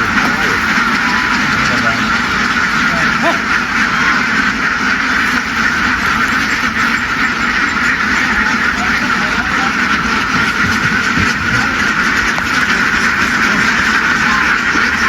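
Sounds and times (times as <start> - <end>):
flock of ducks quacking: 0.0 - 15.0.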